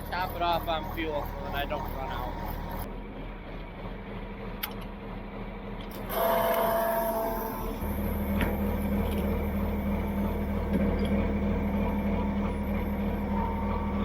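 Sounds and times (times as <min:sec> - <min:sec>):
machine whirring with whine: 0:00.0 - 0:03.6, 0:06.0 - 0:14.0
machinery humming: 0:00.0 - 0:14.0.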